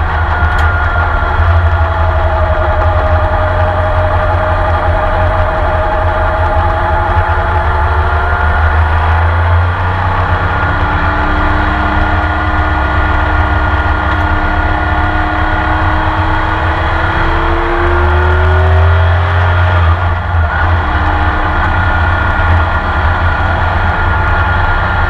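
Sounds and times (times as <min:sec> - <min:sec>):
racing engine under full load: 0:00.0 - 0:25.0.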